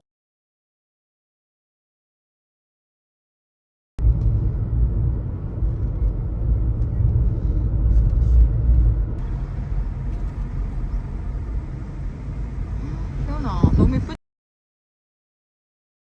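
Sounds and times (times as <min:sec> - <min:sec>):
car driving rumble: 0:04.0 - 0:14.2.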